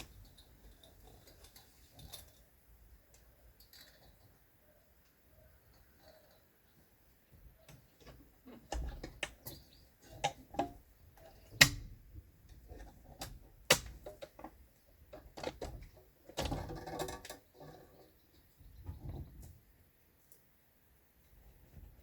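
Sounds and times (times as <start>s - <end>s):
rustling clatter: 0.0s - 2.6s
tools clicking and knocking: 7.6s - 17.6s.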